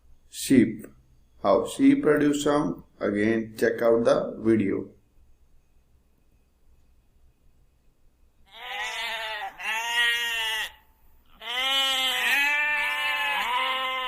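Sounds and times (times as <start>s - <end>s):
sheep bleating: 8.5s - 14.0s.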